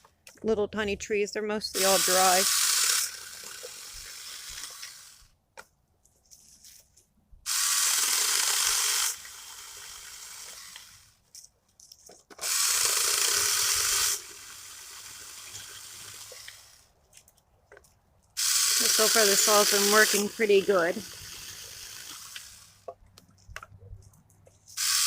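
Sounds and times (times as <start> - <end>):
chainsaw cutting wood: 1.8 - 5.3, 7.5 - 11.2, 12.3 - 16.9, 18.4 - 22.9, 24.8 - 25.0
chainsaw running free: 1.8 - 5.3, 7.5 - 11.2, 12.4 - 16.9, 18.4 - 22.9, 24.8 - 25.0.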